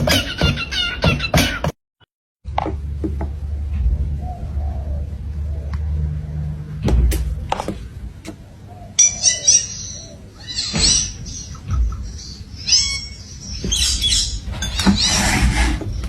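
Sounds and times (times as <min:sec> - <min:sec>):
birds chirping and squawking: 0:00.0 - 0:01.7, 0:03.8 - 0:06.8, 0:07.9 - 0:16.0.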